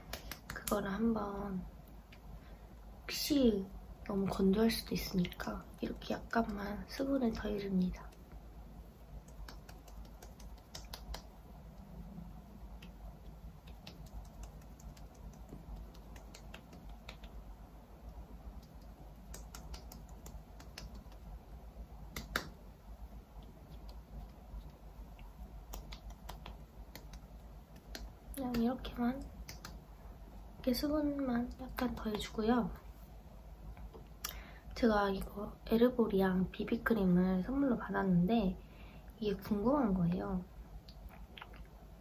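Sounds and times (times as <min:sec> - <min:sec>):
faint low hum: 0:00.0 - 0:42.0.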